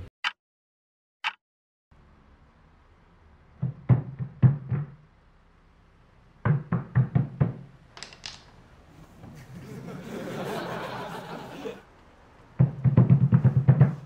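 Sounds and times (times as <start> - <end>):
dull knocking thuds: 3.6 - 5.0, 6.4 - 7.7, 12.6 - 14.0.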